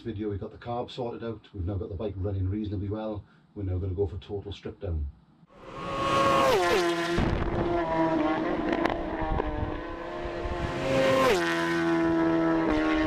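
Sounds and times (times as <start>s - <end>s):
motorcycle engine revving: 5.5s - 13.0s.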